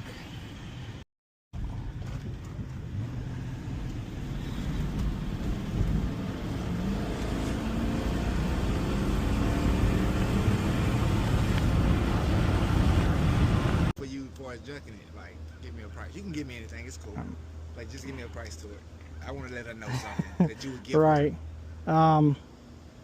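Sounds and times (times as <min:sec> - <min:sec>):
road noise: 0:00.0 - 0:01.0, 0:01.6 - 0:23.0
truck engine accelerating: 0:01.6 - 0:13.9.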